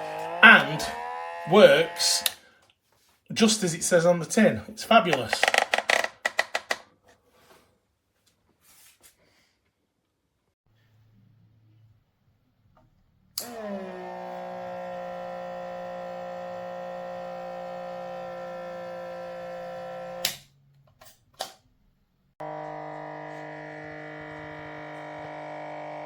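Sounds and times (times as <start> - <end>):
small electric motor humming: 0.0 - 2.3, 13.4 - 20.3, 22.4 - 26.0.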